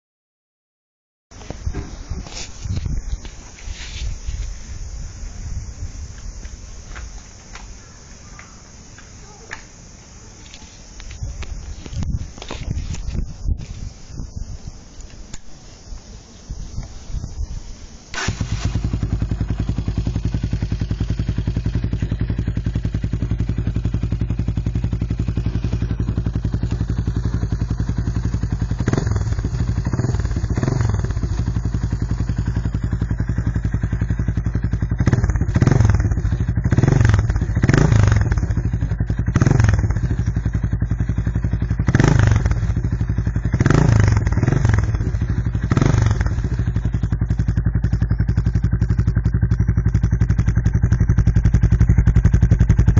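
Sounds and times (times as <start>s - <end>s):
motorcycle engine starting and idling: 18.1s - 52.9s.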